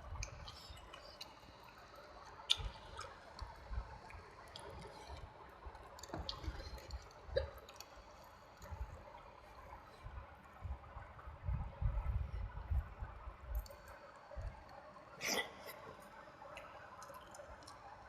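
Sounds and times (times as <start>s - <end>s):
wet chewing and smacking: 0.1s - 9.0s
sharp mouth clicks: 2.4s - 3.2s.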